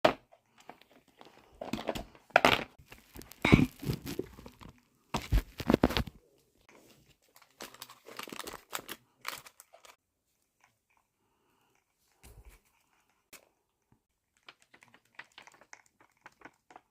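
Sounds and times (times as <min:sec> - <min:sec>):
packaging crinkling and tearing: 0:02.8 - 0:06.2, 0:07.2 - 0:10.0, 0:14.4 - 0:16.8.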